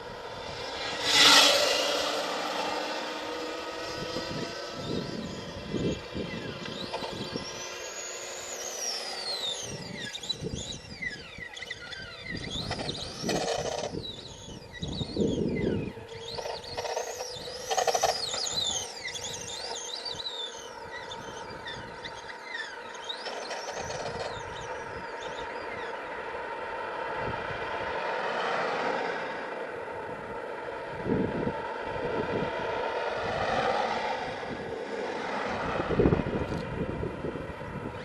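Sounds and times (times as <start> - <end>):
electric motor whining: 0.0 - 26.6
tyres and drivetrain rumbling: 0.0 - 38.0.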